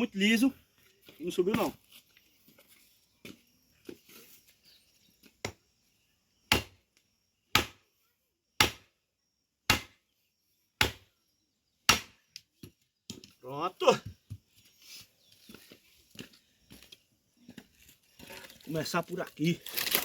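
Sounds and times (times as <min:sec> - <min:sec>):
axe chopping firewood: 0:05.4 - 0:05.7, 0:06.5 - 0:06.8, 0:07.5 - 0:07.9, 0:08.6 - 0:09.0, 0:09.6 - 0:10.1, 0:10.8 - 0:11.1, 0:11.8 - 0:13.3.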